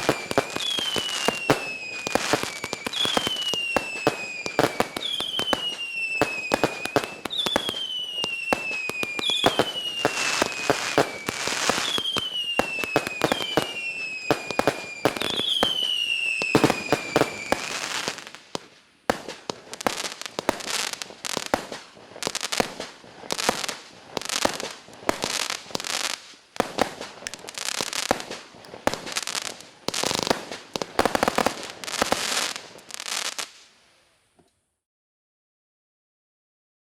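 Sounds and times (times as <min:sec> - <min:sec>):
falling firework whistle: 0:00.0 - 0:18.4
fireworks cracking shots: 0:00.0 - 0:33.7.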